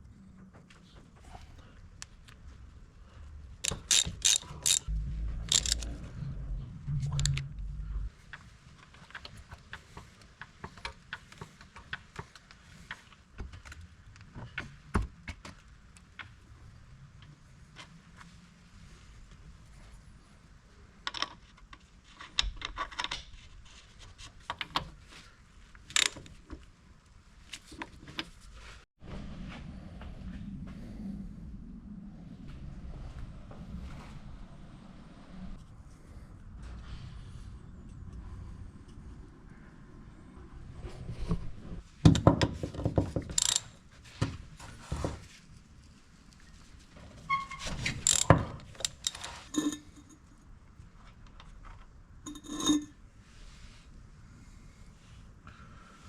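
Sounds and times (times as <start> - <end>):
low background hum: 0.0 - 10.5
low steady rumble: 1.3 - 8.8
ratchet wrench clicking: 3.6 - 4.9, 5.5 - 5.9, 43.4 - 43.7, 48.0 - 49.7.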